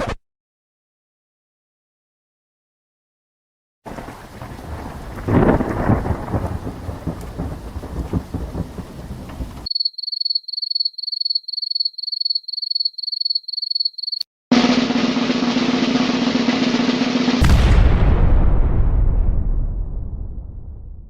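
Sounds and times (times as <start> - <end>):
rain hissing: 3.9 - 9.7
thunder rumble: 3.9 - 9.7, 15.2 - 21.0.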